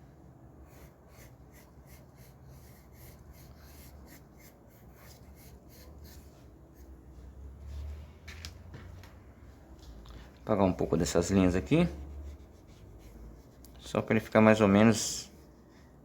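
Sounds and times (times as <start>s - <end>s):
low steady hum: 0.0s - 16.0s
pencil sketching on paper: 0.6s - 7.1s, 11.2s - 13.7s.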